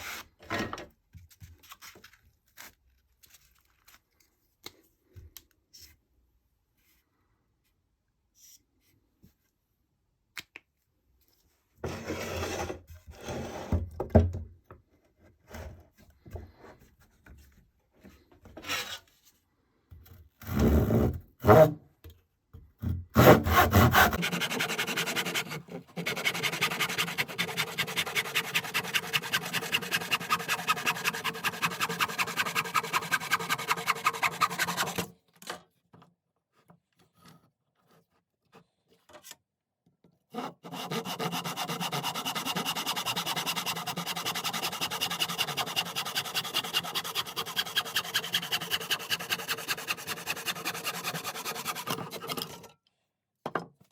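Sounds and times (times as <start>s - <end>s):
rasp scraping wooden handle: 23.2s - 35.1s, 40.4s - 52.7s.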